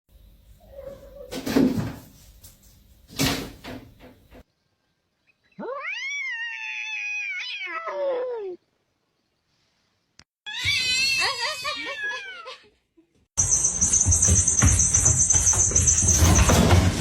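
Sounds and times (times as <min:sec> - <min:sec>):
cat meowing: 0:05.6 - 0:08.6.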